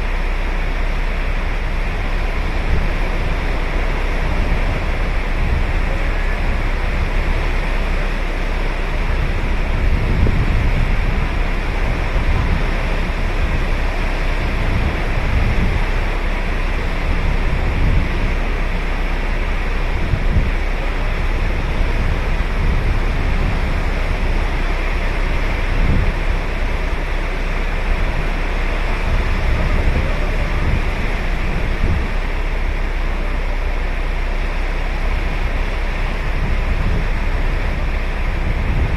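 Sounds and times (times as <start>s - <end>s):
ocean surf on beach: 0.0s - 38.9s
wind rumble on microphone: 0.0s - 38.9s.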